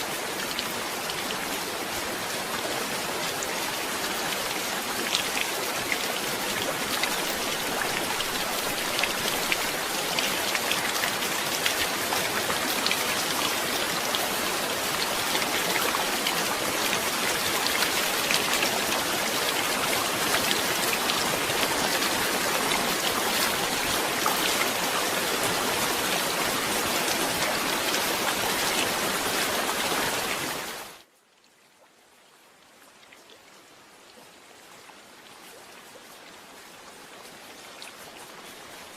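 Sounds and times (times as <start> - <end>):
heavy rain: 0.0 - 31.1.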